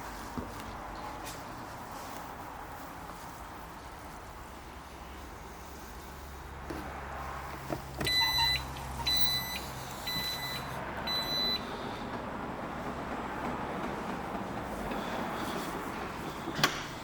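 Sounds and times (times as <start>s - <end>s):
electronic warning chime beeping: 8.1s - 11.7s.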